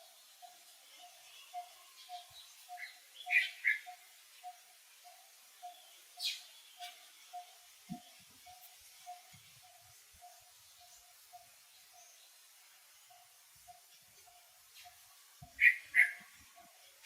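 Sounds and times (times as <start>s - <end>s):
animal chirps: 15.6s - 16.3s.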